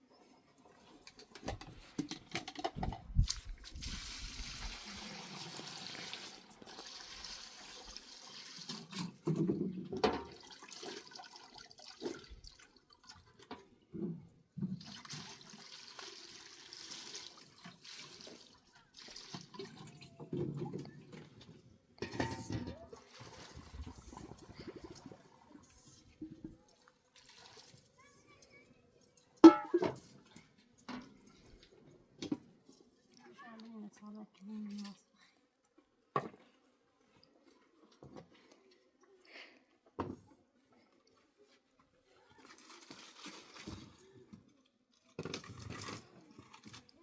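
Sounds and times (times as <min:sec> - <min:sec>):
liquid pouring and sloshing: 0:00.6 - 0:28.4, 0:42.3 - 0:47.0
containers knocking and thudding: 0:01.2 - 0:03.6, 0:08.8 - 0:10.4, 0:22.0 - 0:23.8, 0:29.4 - 0:30.2.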